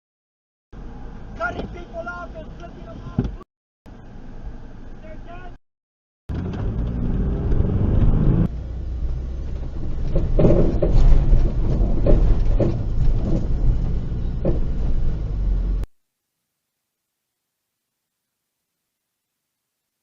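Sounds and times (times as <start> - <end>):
vehicle road and engine rumble: 0.8 - 5.6, 6.3 - 15.9
dull knocks: 10.1 - 14.9.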